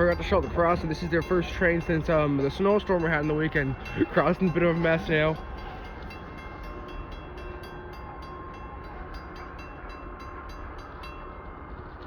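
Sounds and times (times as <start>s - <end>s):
crossing warning bell ringing: 0.0s - 12.0s
train wheels rumbling on rails: 0.0s - 12.0s.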